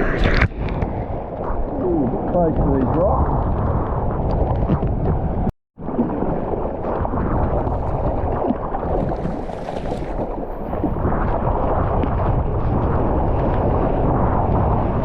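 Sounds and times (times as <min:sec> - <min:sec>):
wind buffeting microphone: 0:00.0 - 0:05.5, 0:06.2 - 0:15.0
water sloshing: 0:05.8 - 0:11.0.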